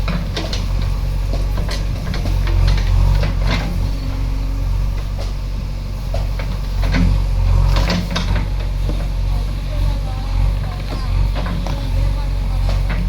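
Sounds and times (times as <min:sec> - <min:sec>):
sharp knocks and cracks: 0:00.0 - 0:03.7
diesel engine running: 0:00.0 - 0:13.0.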